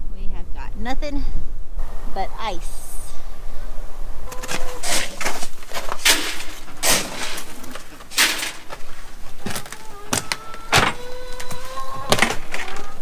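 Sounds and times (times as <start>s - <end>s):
footsteps crunching on icy snow: 4.3s - 10.4s.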